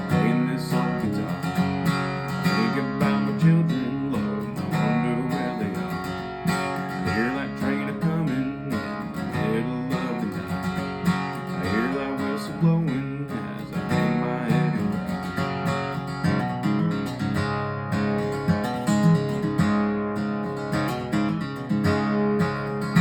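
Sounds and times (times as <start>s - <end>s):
acoustic guitar strumming: 0.0s - 23.0s.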